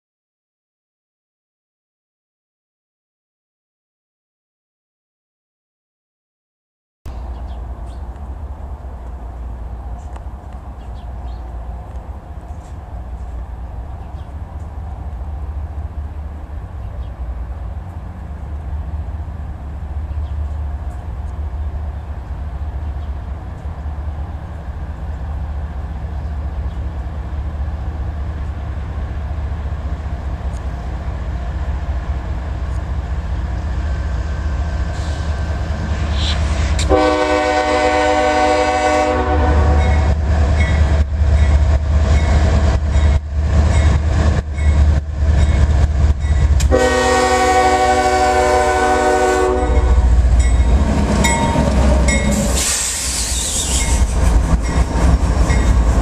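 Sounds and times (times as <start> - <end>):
diesel locomotive engine rumble: 7.1 - 56.0
train horn: 36.2 - 40.2, 46.6 - 50.2.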